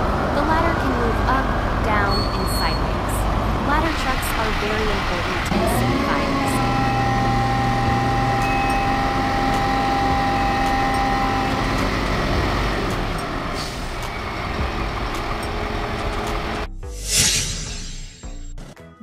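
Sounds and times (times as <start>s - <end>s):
road noise: 0.0s - 16.7s
heavy truck engine running: 3.2s - 16.7s
steady whine: 3.9s - 18.2s.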